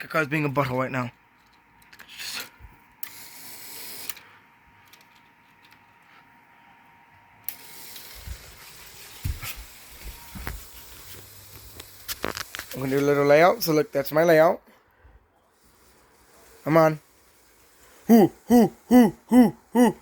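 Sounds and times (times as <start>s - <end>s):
model train cars clicking: 10.5s - 14.7s, 15.5s - 18.1s.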